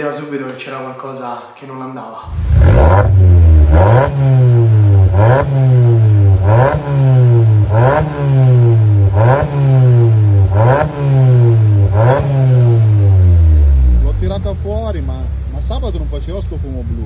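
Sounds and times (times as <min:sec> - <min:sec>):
car engine revving: 0:02.3 - 0:17.0.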